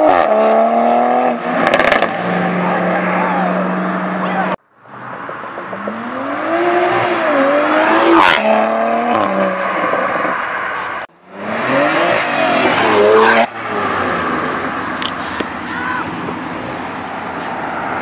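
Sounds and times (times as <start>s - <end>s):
car engine accelerating hard: 11.2s - 15.5s.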